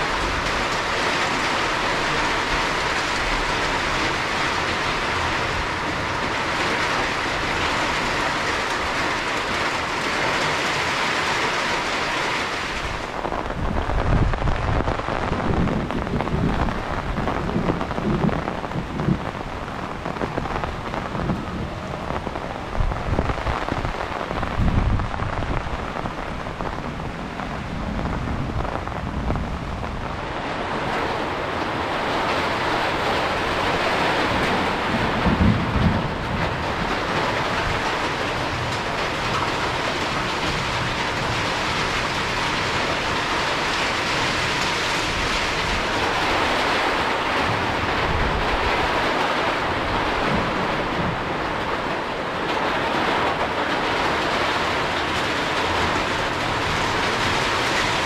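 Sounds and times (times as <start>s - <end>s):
heavy rain pouring: 0.0s - 58.0s
wind buffeting microphone: 12.8s - 58.0s.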